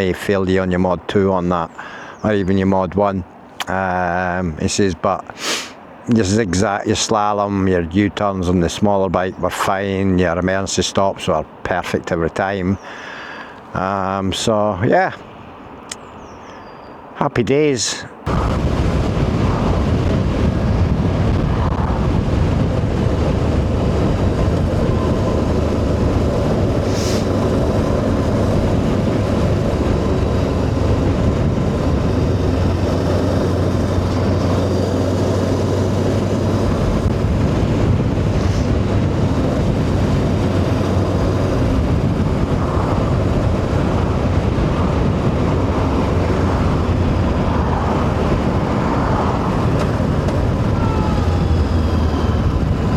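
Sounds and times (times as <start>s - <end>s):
wind rush on microphone: 18.2s - 52.9s
motorcycle engine running: 21.8s - 52.9s.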